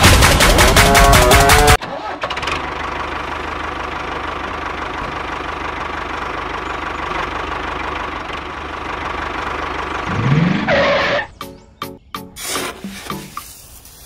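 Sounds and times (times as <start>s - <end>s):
tractor engine knocking: 0.0s - 10.1s.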